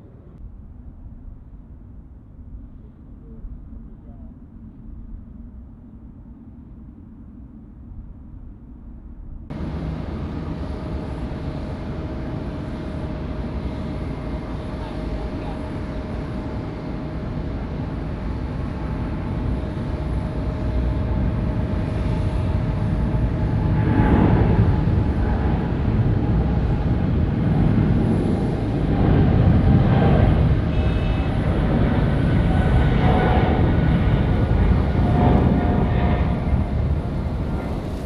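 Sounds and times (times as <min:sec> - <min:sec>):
jet engines roaring: 0:09.5 - 0:38.0.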